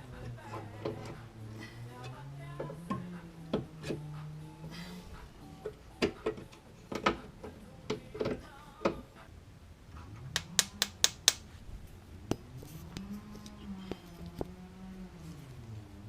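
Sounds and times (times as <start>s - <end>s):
low hum rising in pitch: 11.9s - 16.0s.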